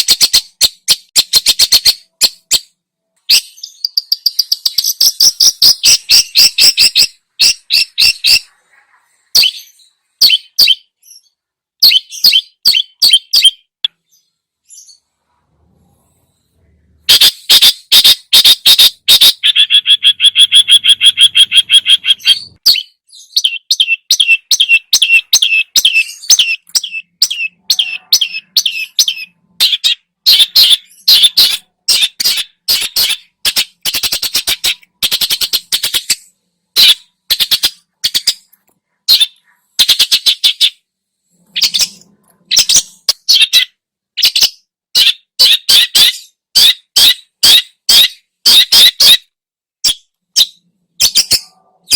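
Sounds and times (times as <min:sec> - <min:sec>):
shrike chattering song: 0:17.0 - 0:38.5.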